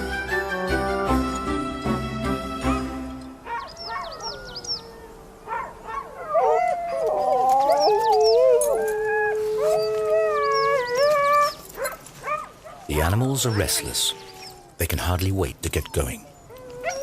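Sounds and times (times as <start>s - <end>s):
huskies howling and yelping: 2.6s - 14.8s, 15.7s - 17.0s.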